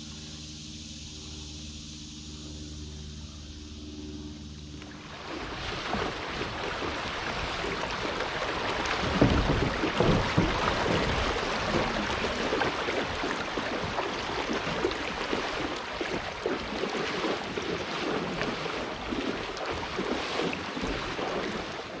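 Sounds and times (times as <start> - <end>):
creek water rushing and splashing: 4.8 - 22.0.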